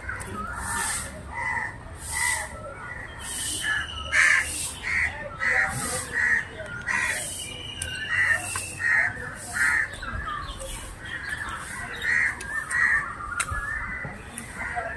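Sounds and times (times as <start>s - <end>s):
crows cawing: 0.1s - 2.4s, 4.1s - 7.2s, 8.1s - 9.9s.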